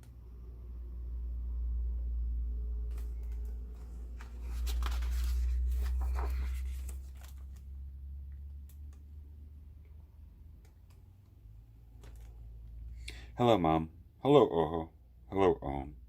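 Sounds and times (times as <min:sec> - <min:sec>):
low handling rumble: 0:01.6 - 0:07.5
paper page rustling: 0:02.9 - 0:07.7.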